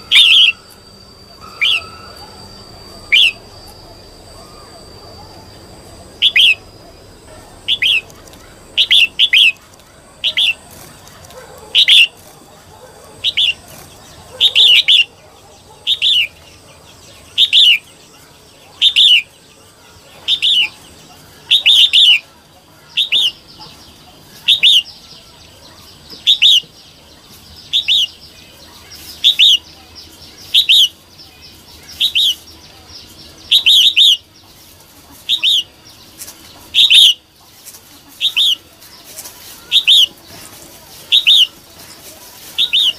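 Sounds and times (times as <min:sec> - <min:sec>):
bulbul calling: 0:00.0 - 0:27.0, 0:27.6 - 0:42.9.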